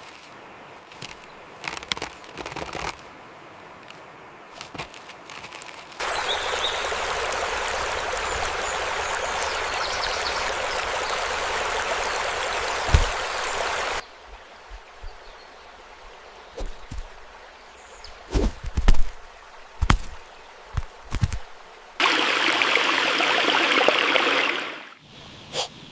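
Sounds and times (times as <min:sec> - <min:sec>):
stream rushing: 0:06.0 - 0:25.0
low thumps and clicks: 0:18.3 - 0:19.2.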